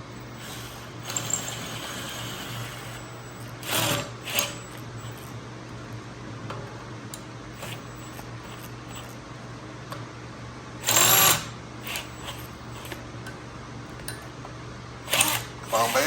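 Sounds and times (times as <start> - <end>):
low electrical hum: 0.0 - 16.0
electric drill running: 0.1 - 5.4, 7.5 - 9.2, 10.8 - 13.0, 15.0 - 16.0.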